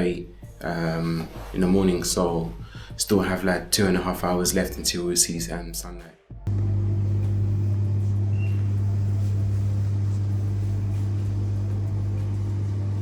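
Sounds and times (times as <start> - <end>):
steady low hum: 6.5 - 13.0.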